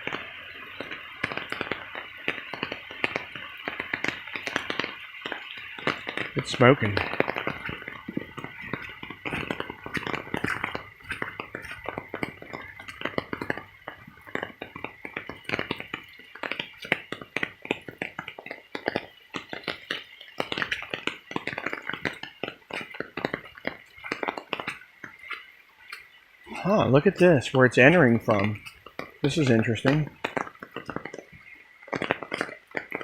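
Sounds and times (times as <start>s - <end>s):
raindrops tapping: 0.0s - 33.0s.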